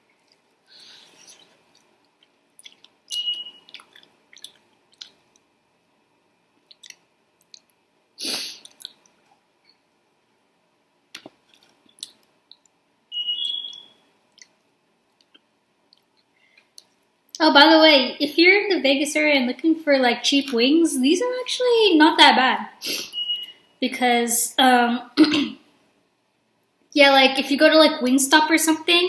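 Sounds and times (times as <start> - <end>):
person chewing wetly: 1.3 - 5.4, 6.6 - 7.8, 8.6 - 9.2, 11.2 - 12.7.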